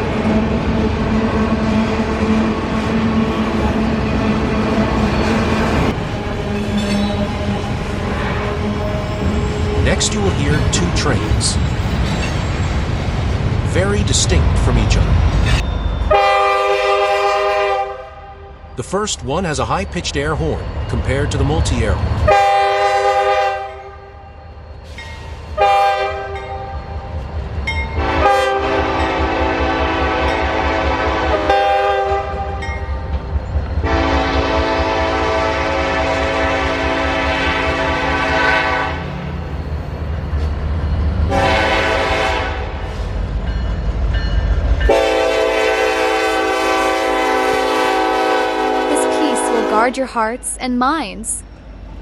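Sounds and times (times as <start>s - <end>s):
passing train rumble: 0.0s - 52.0s
locomotive air horn: 8.0s - 10.0s, 16.1s - 18.6s, 22.3s - 24.2s, 25.6s - 26.4s, 28.0s - 32.6s, 33.8s - 39.1s, 41.3s - 42.9s, 44.9s - 49.9s.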